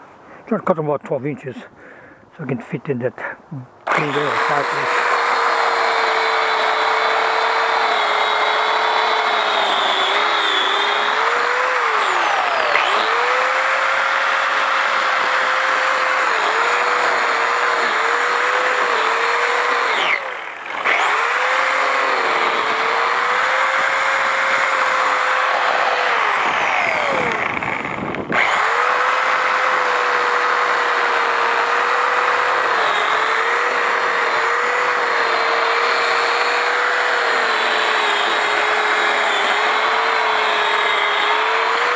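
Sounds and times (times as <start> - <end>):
electric pole saw cutting branches: 3.8 - 41.9.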